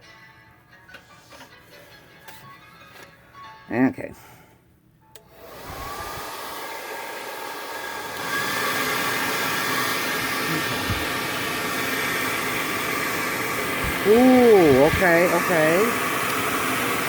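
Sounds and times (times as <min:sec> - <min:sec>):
hair dryer motor blowing air: 0:05.2 - 0:17.0
hair dryer switch click: 0:16.0 - 0:16.6.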